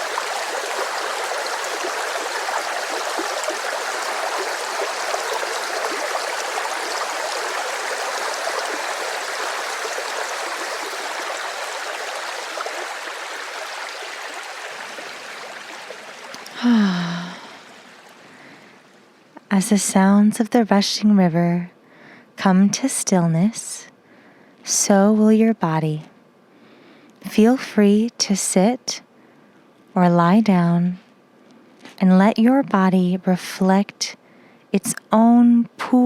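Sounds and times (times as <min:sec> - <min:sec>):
river water rushing: 0:00.0 - 0:16.6.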